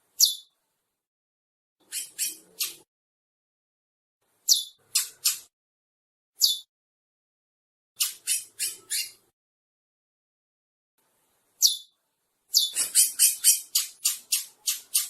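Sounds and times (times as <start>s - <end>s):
finch singing: 0.2s - 0.5s, 1.8s - 2.9s, 4.4s - 5.5s, 6.4s - 6.7s, 8.0s - 9.3s, 11.6s - 15.0s.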